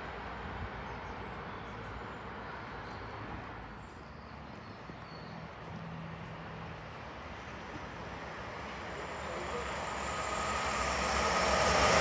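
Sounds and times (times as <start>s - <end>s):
distant train wheels rumbling: 0.0s - 12.0s
low hum: 7.9s - 12.0s.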